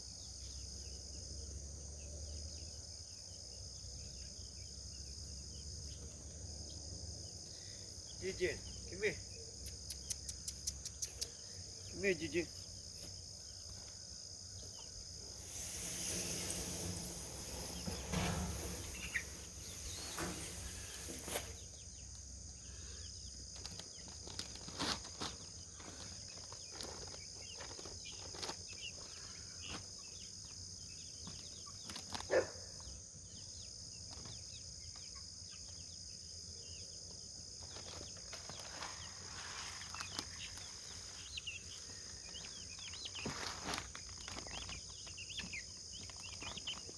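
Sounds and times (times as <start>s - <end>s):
insects chirping: 0.0s - 46.9s
rustling: 15.2s - 21.9s, 23.5s - 29.9s, 37.6s - 46.9s.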